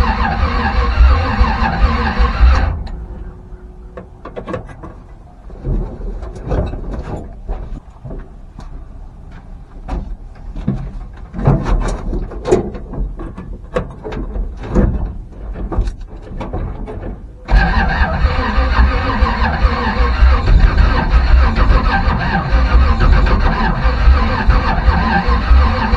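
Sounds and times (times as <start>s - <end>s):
truck engine cranking: 0.0s - 8.6s, 11.3s - 25.9s
knocks and clatter: 0.0s - 25.9s.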